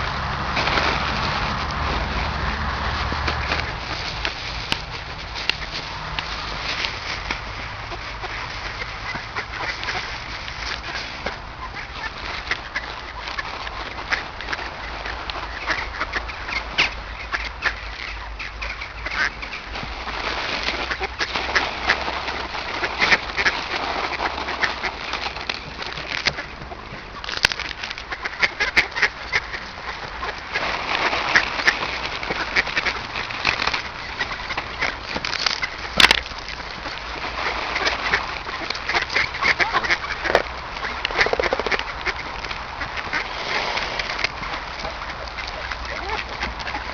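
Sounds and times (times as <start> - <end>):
ducks quacking: 0.0 - 46.9.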